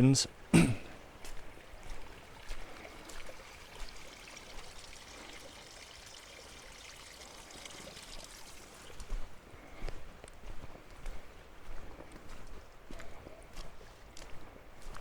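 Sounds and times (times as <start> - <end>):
footsteps on wet trail: 0.0 - 7.0, 7.6 - 15.0
water trickling: 0.8 - 9.3.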